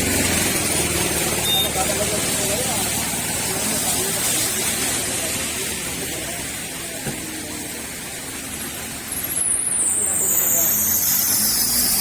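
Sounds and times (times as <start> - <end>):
rain falling: 0.0 - 12.0.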